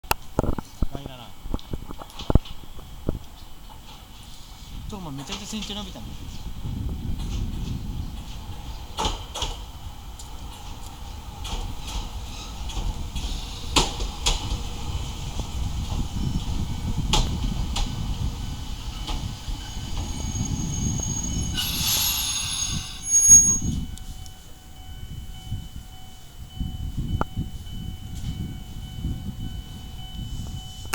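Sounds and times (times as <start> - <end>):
train wheels rumbling on track: 0.2 - 30.9
brake squeal and hiss: 19.5 - 23.8.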